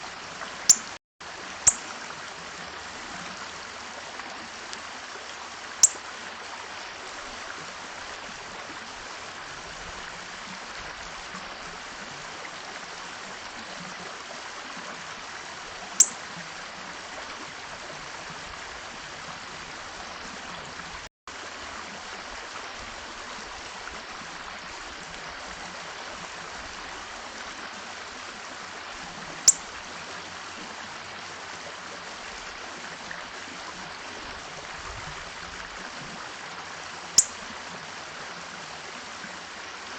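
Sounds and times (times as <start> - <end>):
small birds chirping: 0.7 - 1.0.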